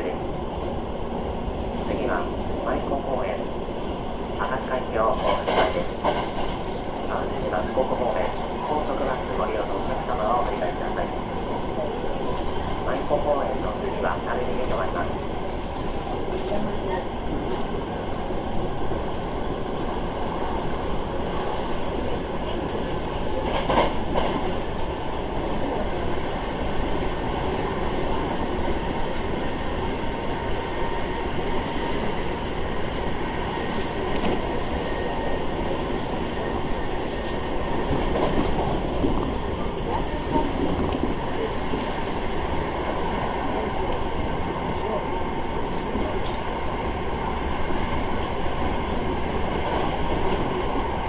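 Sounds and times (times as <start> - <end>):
train wheels rumbling on rail: 0.0 - 51.0
clicks of train wheels: 5.1 - 7.2, 23.4 - 24.9.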